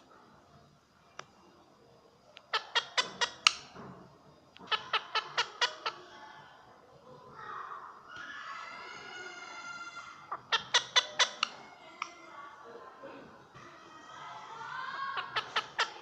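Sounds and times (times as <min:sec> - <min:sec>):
parrot squawking: 0:02.5 - 0:03.7, 0:04.7 - 0:06.0, 0:08.4 - 0:11.8, 0:15.1 - 0:16.0.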